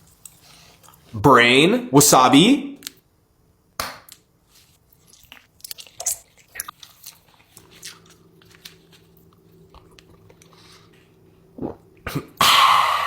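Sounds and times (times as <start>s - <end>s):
quiet chewing: 0.0s - 1.1s, 4.6s - 12.3s
crunching food: 4.1s - 11.0s
steady low hum: 4.4s - 13.0s.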